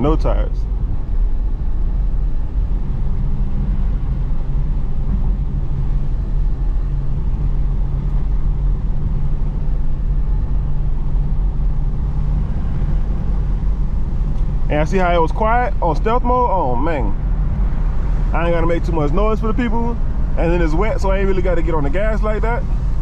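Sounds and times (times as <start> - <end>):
car engine humming: 0.0 - 23.0.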